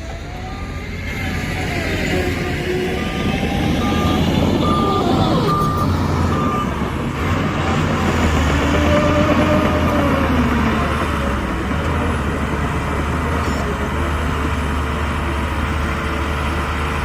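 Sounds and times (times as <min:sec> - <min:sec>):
reversing alarm beeping: 0:00.0 - 0:07.8
heavy diesel engine running: 0:00.0 - 0:17.0.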